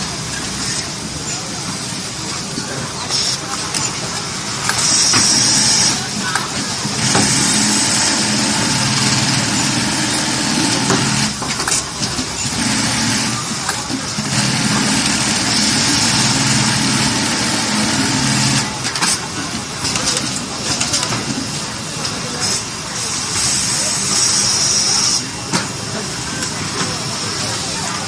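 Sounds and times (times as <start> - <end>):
sewing machine running: 3.1 - 19.2.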